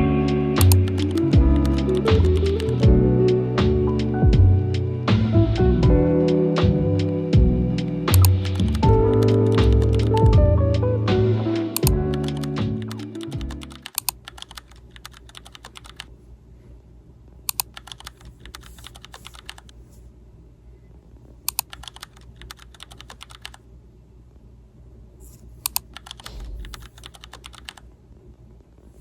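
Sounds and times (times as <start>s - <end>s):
low steady hum: 0.0s - 29.0s
typing on a keyboard: 0.6s - 2.8s, 11.8s - 16.1s, 17.5s - 19.8s, 21.5s - 23.6s, 25.7s - 27.8s.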